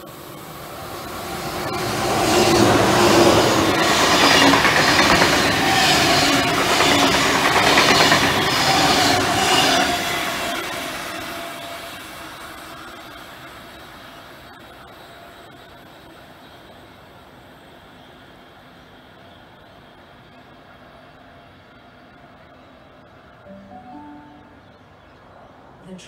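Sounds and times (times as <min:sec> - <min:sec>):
train wheels clattering: 0:01.6 - 0:11.4
faint hum: 0:12.6 - 0:26.0.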